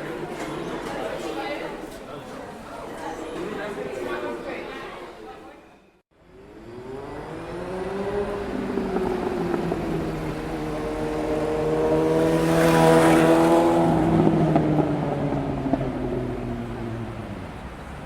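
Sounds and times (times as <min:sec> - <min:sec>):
motor vehicle passing by: 0:06.2 - 0:18.0.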